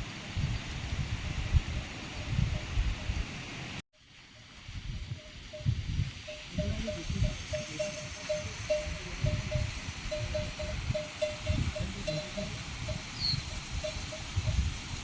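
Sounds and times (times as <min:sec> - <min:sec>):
wind rumble on microphone: 0:00.0 - 0:03.8, 0:04.4 - 0:15.0
livestock bell clinking: 0:05.2 - 0:15.0.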